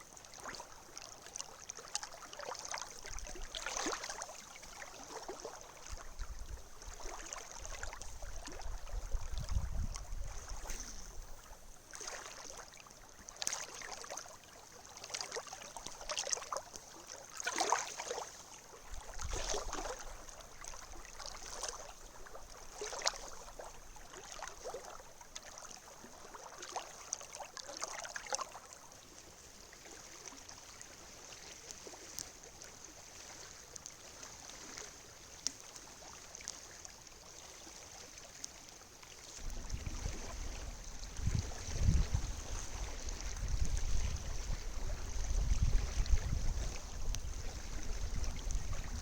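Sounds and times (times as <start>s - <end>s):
small waves washing on beach: 0.0s - 49.0s
wind buffeting microphone: 7.6s - 11.5s, 39.4s - 49.0s.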